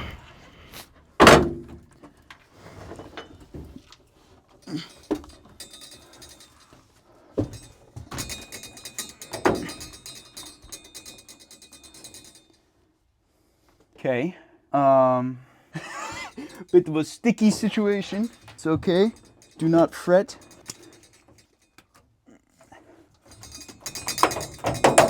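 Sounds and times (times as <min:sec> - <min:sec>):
metal knocks on car roof: 0:01.2 - 0:01.8.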